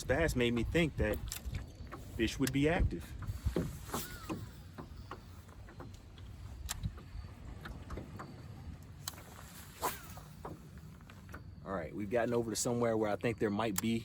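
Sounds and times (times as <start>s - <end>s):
boat engine low rumble: 0.0s - 14.0s
sharp clicks and knocks: 0.5s - 8.4s.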